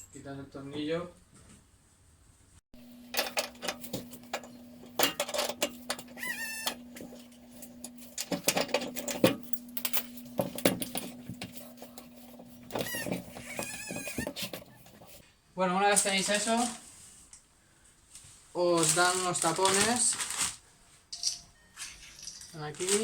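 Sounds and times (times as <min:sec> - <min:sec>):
steady low hum: 0:02.8 - 0:15.3
short squeak: 0:06.2 - 0:06.8, 0:12.7 - 0:14.9.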